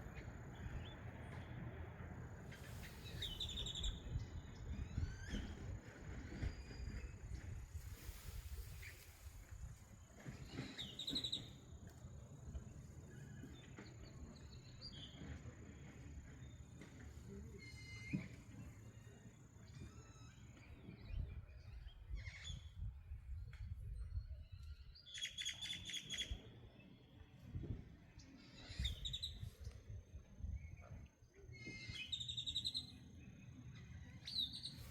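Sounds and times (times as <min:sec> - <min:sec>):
bird chirps: 0:02.6 - 0:05.6, 0:10.4 - 0:11.6, 0:31.6 - 0:34.9.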